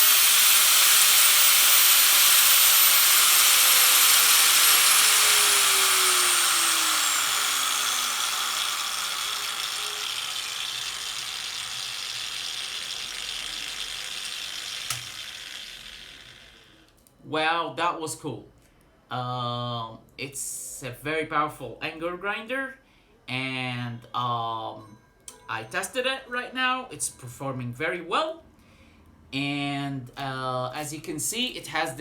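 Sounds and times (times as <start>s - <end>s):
angle grinder motor whine: 0.0s - 16.9s
sharp click: 14.8s - 15.2s.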